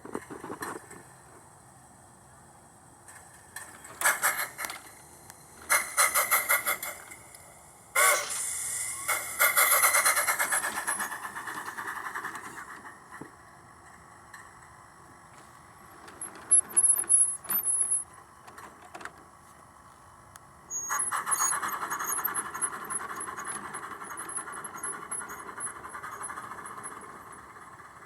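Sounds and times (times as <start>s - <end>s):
model train rolling: 2.2s - 28.0s
model train wheel squeals: 3.7s - 5.0s, 5.6s - 7.4s, 8.0s - 13.0s, 16.0s - 18.1s, 20.7s - 28.0s.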